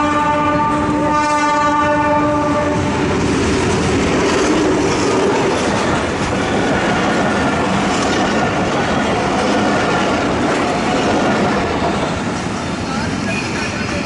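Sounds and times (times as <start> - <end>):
locomotive horn blast: 0.0 - 2.9
train wheels running on rails: 0.0 - 14.0.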